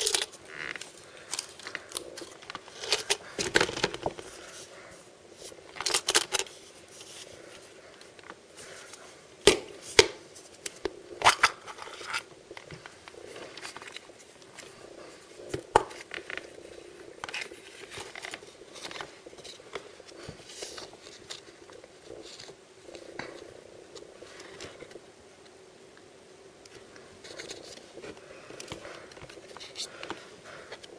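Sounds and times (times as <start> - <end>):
packaging crinkling and rustling: 0.0 - 4.8, 5.4 - 23.3.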